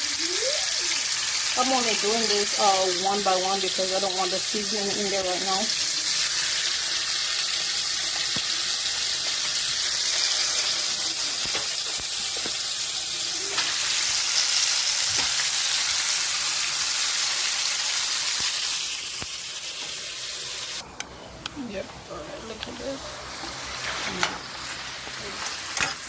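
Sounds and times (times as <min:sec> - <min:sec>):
chicken sizzling in hot oil: 0:00.0 - 0:20.8, 0:23.1 - 0:26.0.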